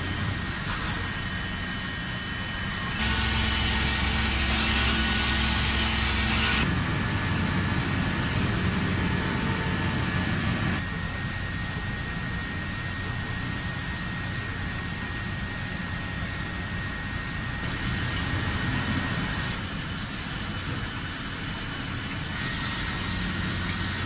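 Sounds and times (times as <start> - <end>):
industrial machinery running: 0.0 - 12.6, 17.5 - 24.0.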